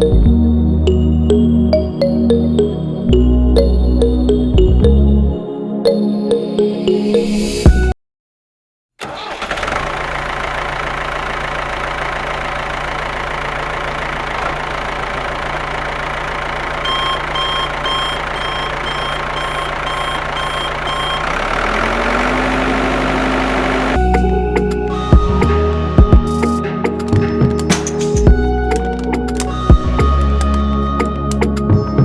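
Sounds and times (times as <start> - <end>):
engine humming: 9.0 - 25.5, 26.4 - 31.8
short electronic beeps: 16.8 - 21.4.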